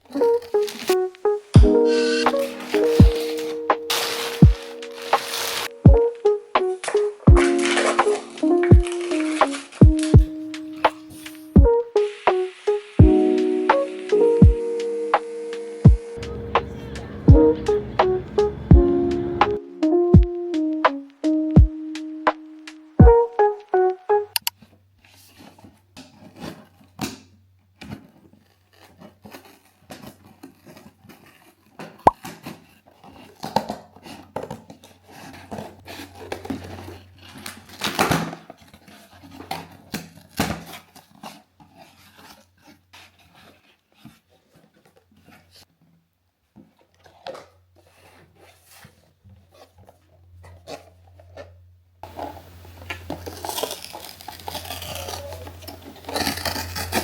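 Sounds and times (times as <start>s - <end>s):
light rustling or tearing: 0.0s - 13.0s, 24.5s - 45.8s, 46.6s - 57.0s.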